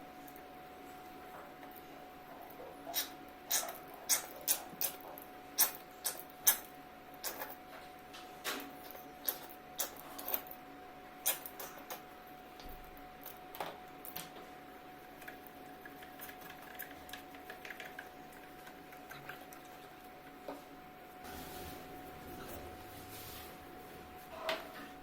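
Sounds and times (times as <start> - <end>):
utensils clicking and tapping: 15.1 - 20.6.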